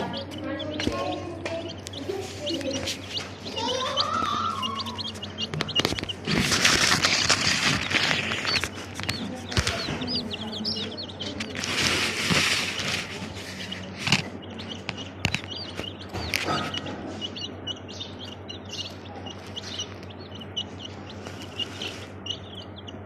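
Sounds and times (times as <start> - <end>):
baby chicks peeping: 0.0 - 23.0
rustling: 1.0 - 17.4, 20.8 - 22.6.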